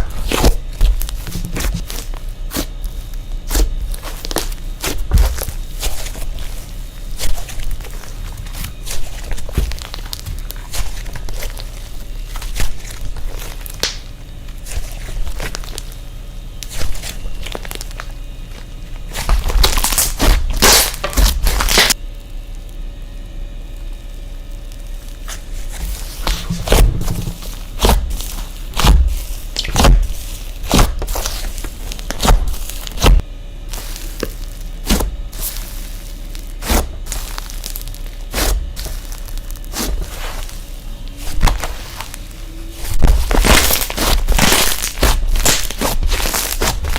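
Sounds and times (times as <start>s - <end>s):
slime clicking and crackling: 0.0s - 22.0s, 24.5s - 46.9s.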